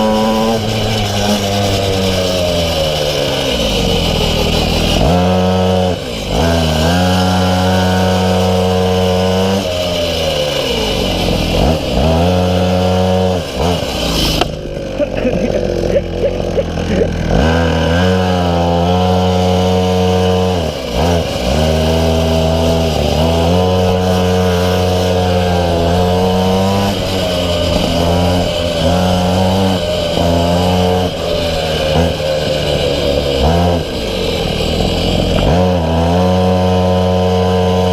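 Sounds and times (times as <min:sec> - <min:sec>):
small two-stroke engine revving: 0:00.0 - 0:37.9.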